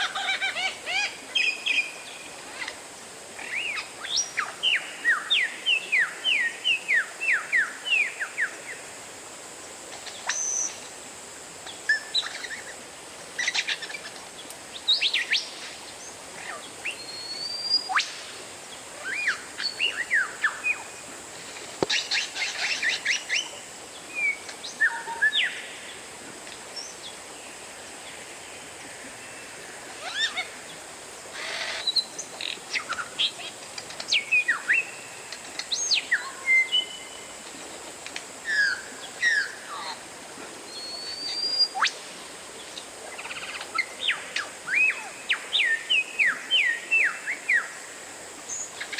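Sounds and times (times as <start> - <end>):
bird whistling song: 16.9 - 18.1, 40.7 - 42.0.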